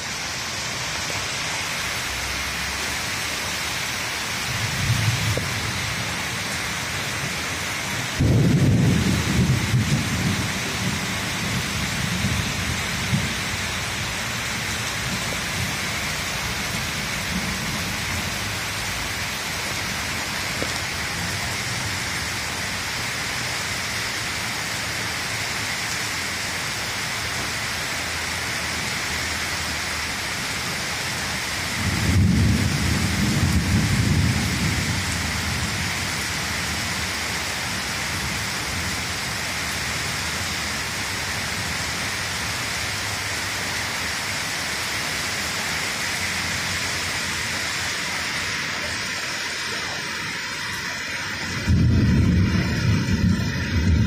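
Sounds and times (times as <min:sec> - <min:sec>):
steady rain: 0:00.0 - 0:54.0
thunder rumble: 0:04.4 - 0:22.5, 0:31.7 - 0:37.2, 0:50.5 - 0:54.0.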